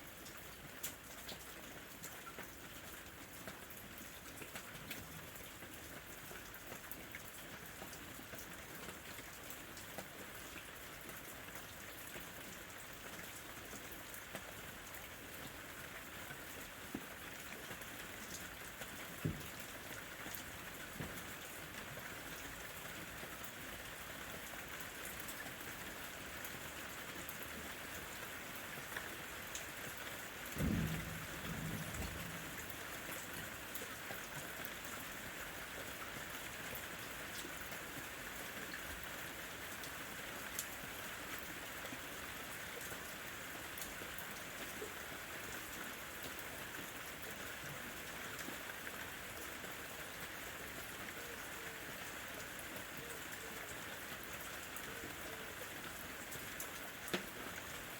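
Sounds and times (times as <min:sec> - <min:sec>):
rain falling: 0:00.0 - 0:57.9
loud single raindrops: 0:19.2 - 0:19.8, 0:30.4 - 0:33.9
distant thunder rumble: 0:30.6 - 0:33.0.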